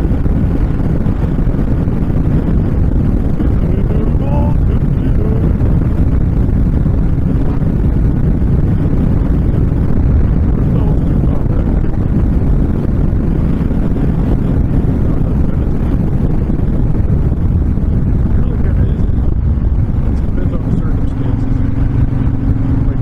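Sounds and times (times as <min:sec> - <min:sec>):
motorcycle engine at speed: 0:00.0 - 0:23.0
wind rushing on microphone: 0:00.0 - 0:23.0.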